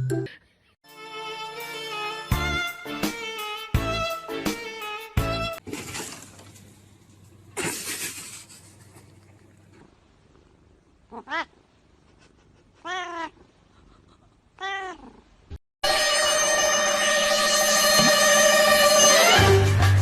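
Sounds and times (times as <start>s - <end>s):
cat meowing: 11.1s - 11.6s, 12.8s - 13.4s, 14.6s - 15.2s.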